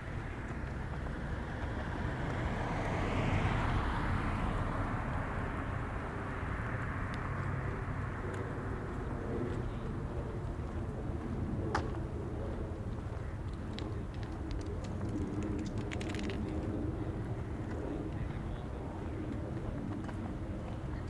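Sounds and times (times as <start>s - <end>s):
vehicle passing by: 1.1s - 10.8s.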